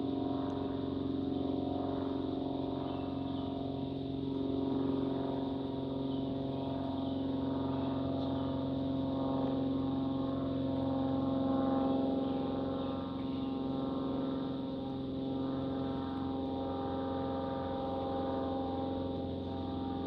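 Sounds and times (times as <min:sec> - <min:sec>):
engine droning: 0:00.0 - 0:20.0.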